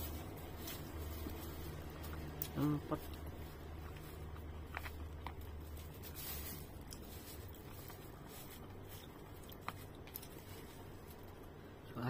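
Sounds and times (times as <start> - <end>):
person chewing food: 0.0 - 11.6
low hum: 0.0 - 12.0.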